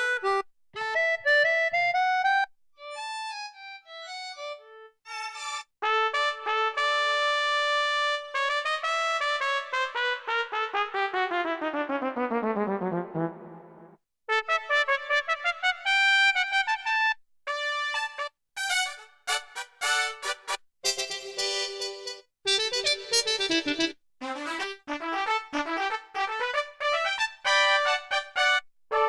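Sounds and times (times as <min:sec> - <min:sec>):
synthesizer brass chords and runs: 0:11.2 - 0:15.5, 0:17.5 - 0:29.0.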